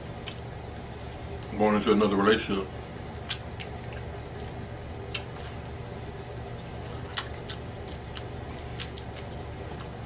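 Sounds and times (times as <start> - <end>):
steady low hum: 0.0 - 10.0
wet mouth clicks and smacks: 3.2 - 4.1, 7.1 - 9.4
close chewing: 3.2 - 10.0.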